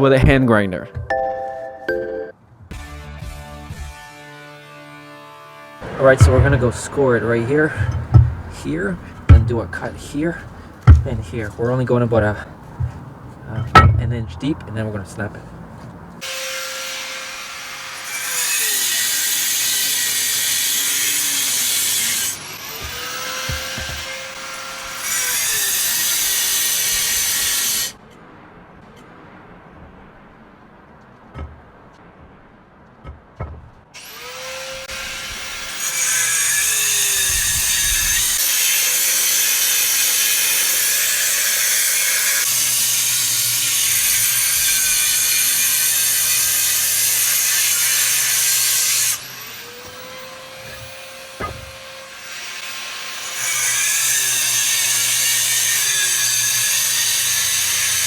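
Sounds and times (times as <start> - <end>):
knocks: 5.8 - 14.4, 22.8 - 24.1, 31.3 - 31.6, 33.0 - 33.8, 50.7 - 51.8
angle grinder cutting stone: 5.8 - 15.2, 16.2 - 28.0, 34.0 - 58.0.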